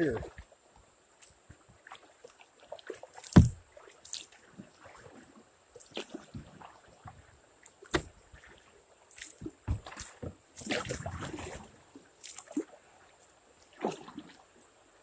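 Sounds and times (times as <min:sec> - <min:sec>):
kayak moving through water: 0:00.0 - 0:15.0
small water splashes: 0:01.2 - 0:14.7
hollow knocks against hull: 0:03.3 - 0:03.6, 0:07.9 - 0:08.2, 0:09.4 - 0:10.9.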